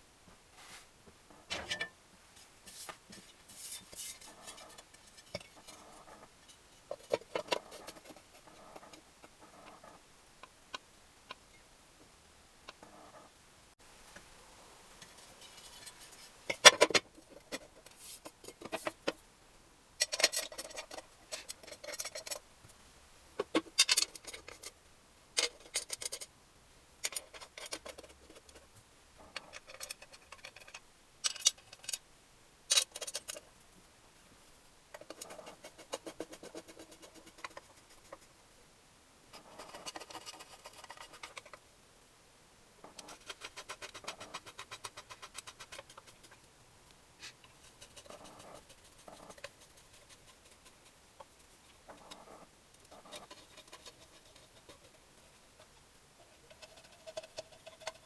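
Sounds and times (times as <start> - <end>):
metal tools and parts handled: 1.5 - 2.0, 3.1 - 8.2, 20.0 - 22.4, 23.7 - 24.7, 25.4 - 26.3, 29.4 - 32.0, 32.7 - 33.4.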